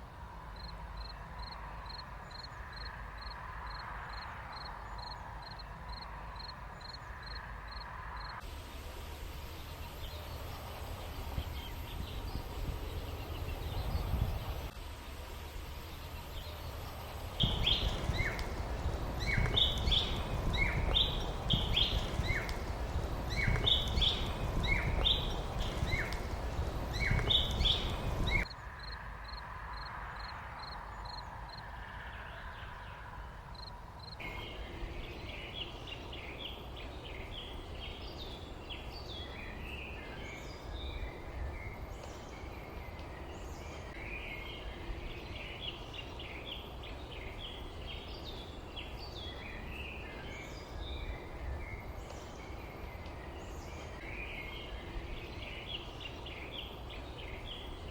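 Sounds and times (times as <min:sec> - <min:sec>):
songbirds chirping: 0:00.0 - 0:57.9
low rumble: 0:08.5 - 0:28.5
high ticks: 0:16.7 - 0:29.0.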